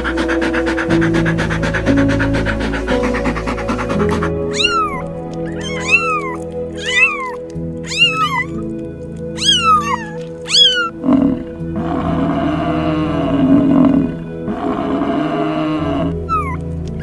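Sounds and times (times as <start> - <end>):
lion roaring and growling: 0.0 - 8.6, 9.4 - 16.6
background music: 0.0 - 17.0
meow-like cries: 4.5 - 8.6, 9.4 - 11.0.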